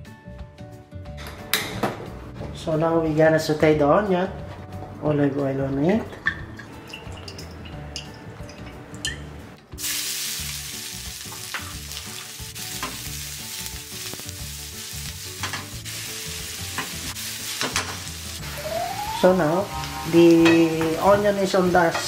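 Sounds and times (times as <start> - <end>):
onions sizzling in a frying pan: 9.8 - 22.0.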